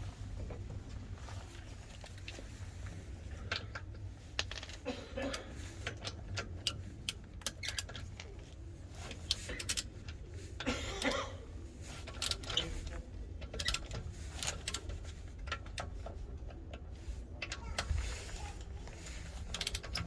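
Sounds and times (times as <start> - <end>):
low steady hum: 0.0 - 20.0
sharp clicks and light knocks: 12.0 - 20.0.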